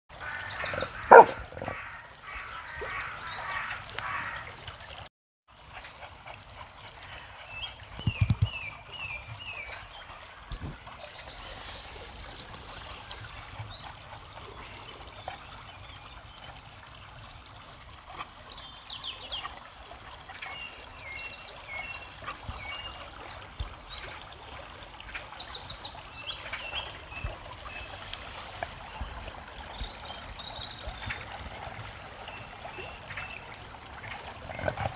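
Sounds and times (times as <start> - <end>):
songbirds chirping: 0.2 - 4.5, 8.0 - 16.2, 17.6 - 31.3
water trickling: 0.2 - 5.1, 6.5 - 34.9.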